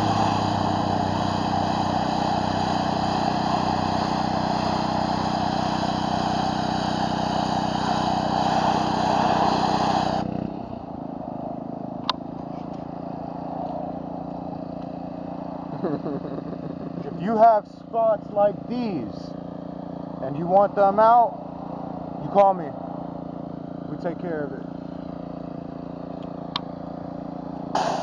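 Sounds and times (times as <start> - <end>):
water spray hissing: 0.0 - 10.4, 27.7 - 28.0
pressure washer engine: 0.0 - 28.0.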